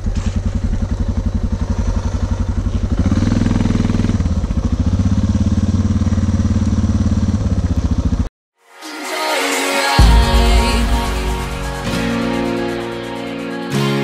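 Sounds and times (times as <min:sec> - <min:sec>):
motorcycle engine running at low revs: 0:00.0 - 0:08.3.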